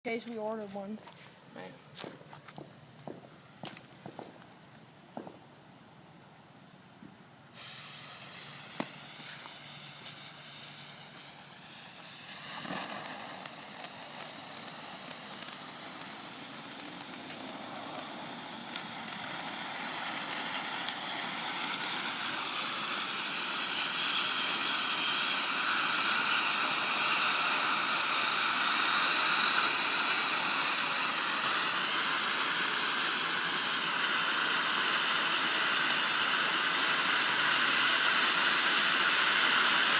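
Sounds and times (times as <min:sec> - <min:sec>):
firework fountain hissing: 0:00.1 - 0:39.9
sharp crackles: 0:07.6 - 0:22.4.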